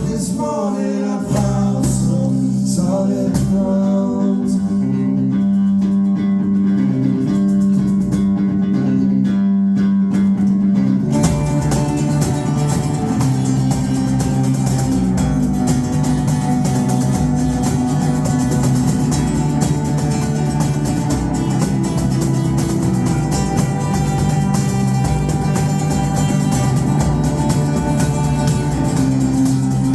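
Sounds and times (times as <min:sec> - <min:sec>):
electric guitar chords: 0:03.4 - 0:29.9
rock band playing: 0:11.0 - 0:29.9.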